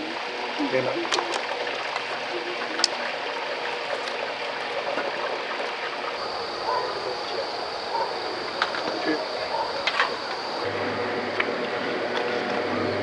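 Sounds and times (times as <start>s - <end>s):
campfire hissing and crackling: 6.2s - 10.7s.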